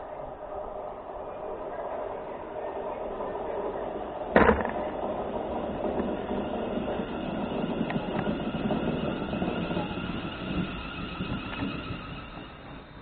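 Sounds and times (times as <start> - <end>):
train wheel and rail noise: 0.0 - 13.0
sharp thump: 4.4 - 5.0.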